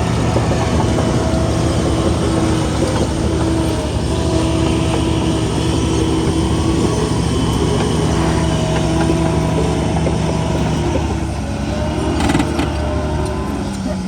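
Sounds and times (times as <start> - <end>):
diesel machinery engine drone: 0.0 - 14.0
steady machine whine: 0.0 - 14.0.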